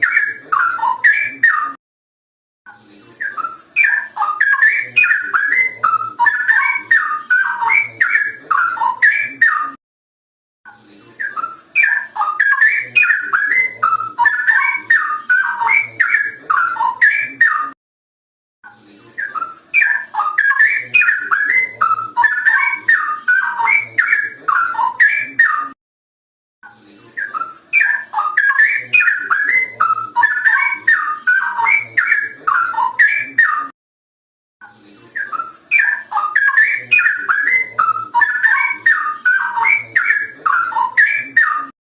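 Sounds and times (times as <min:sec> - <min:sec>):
bird warbling whistles: 0:03.2 - 0:09.8, 0:11.2 - 0:17.8, 0:19.2 - 0:25.8, 0:27.2 - 0:33.7, 0:35.2 - 0:41.7.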